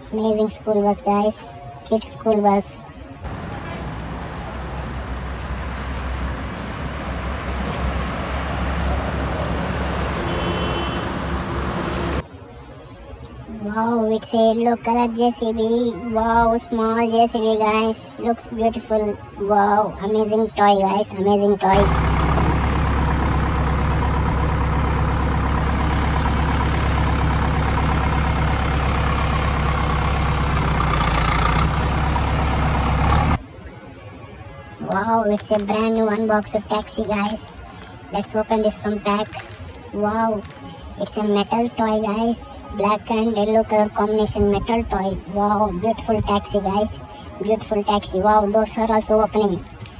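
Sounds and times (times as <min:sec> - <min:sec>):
vehicle engine and road noise: 0:03.2 - 0:12.4, 0:21.6 - 0:33.4.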